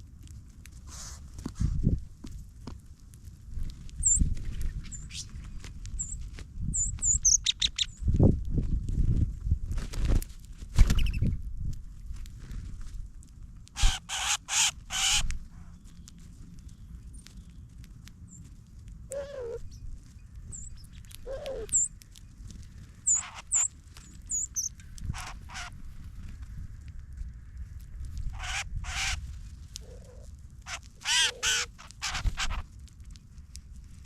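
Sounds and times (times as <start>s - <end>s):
small birds chipping: 3.9s - 8.1s, 10.9s - 11.4s, 13.8s - 25.8s, 28.2s - 33.8s
low outdoor rumble: 7.9s - 34.0s
harsh caw-like bird calls: 13.8s - 15.3s, 23.1s - 23.7s, 24.5s - 25.8s, 28.3s - 29.2s, 29.8s - 32.6s.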